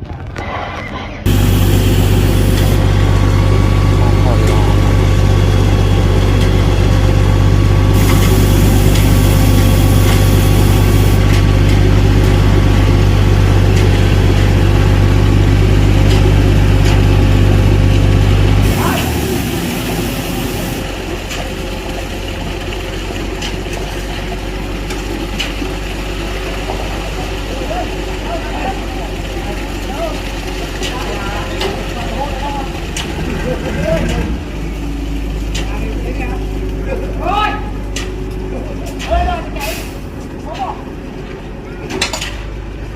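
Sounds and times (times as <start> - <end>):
engine humming: 1.3 - 42.9
short bursts of hiss: 8.0 - 11.2.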